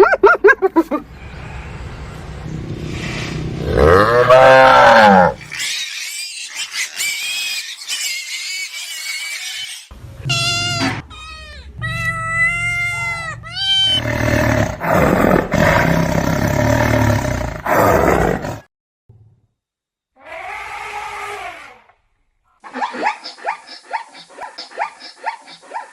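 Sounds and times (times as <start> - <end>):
wild animal calls and roars: 0.7 - 18.7, 20.2 - 22.0
wavering animal cries: 3.8 - 14.6, 20.2 - 21.9.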